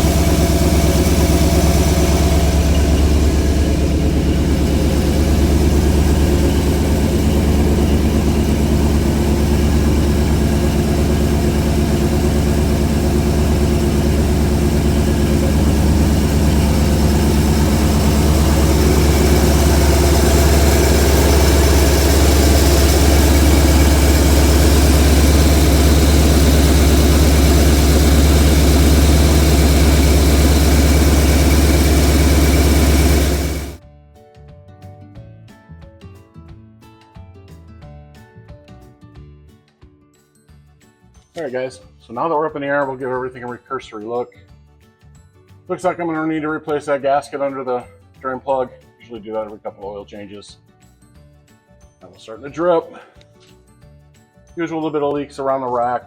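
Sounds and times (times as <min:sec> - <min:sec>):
car engine idling: 0:00.0 - 0:33.8.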